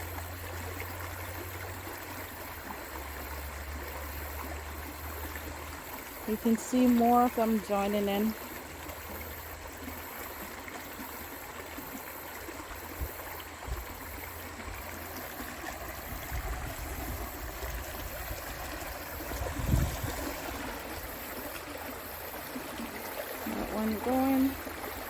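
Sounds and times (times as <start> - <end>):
creek water running over rocks: 0.0 - 25.0
low thumps on microphone: 19.4 - 20.4.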